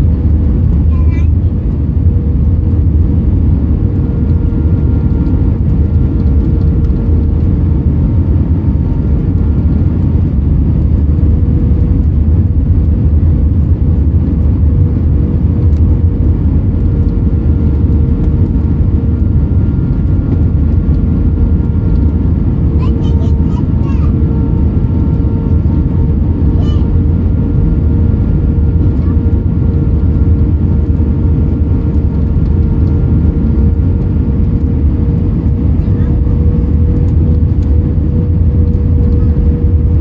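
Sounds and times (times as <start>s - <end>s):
airplane cabin rumble: 0.0s - 40.0s.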